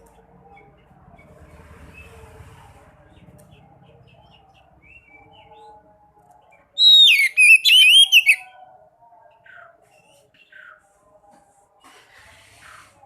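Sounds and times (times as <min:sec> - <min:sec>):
songbird singing: 0:03.1 - 0:10.9.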